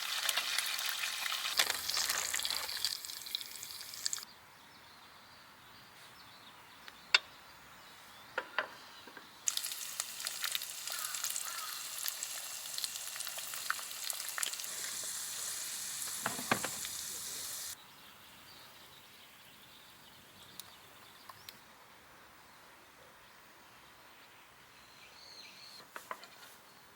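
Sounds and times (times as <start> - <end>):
steady sizzling with crackles: 0.0 - 4.3, 9.5 - 17.8.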